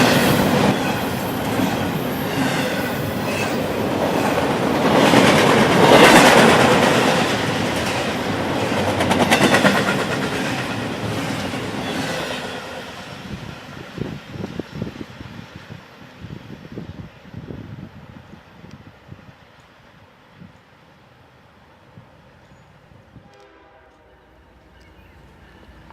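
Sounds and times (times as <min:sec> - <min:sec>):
train wheels clacking over joints: 0:00.0 - 0:12.4
train rolling rush: 0:00.0 - 0:25.9.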